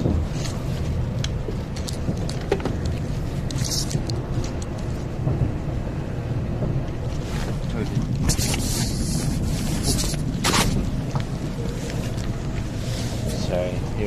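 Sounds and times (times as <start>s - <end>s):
train rumbling inside cabin: 0.0s - 14.0s.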